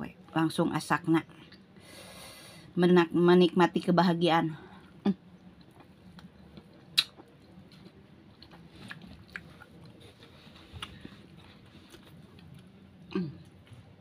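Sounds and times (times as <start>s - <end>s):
chewing and mouth sounds: 4.8s - 13.9s
sharp mouth clicks: 7.0s - 7.2s.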